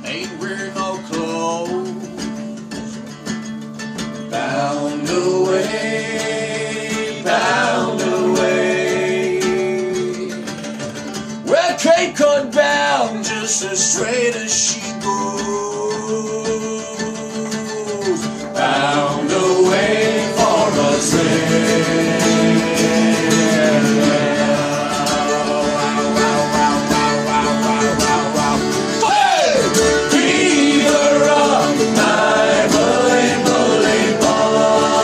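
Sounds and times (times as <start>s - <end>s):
plucked strings: 0.0s - 35.0s
choir singing a sea shanty: 4.3s - 10.7s, 18.5s - 35.0s.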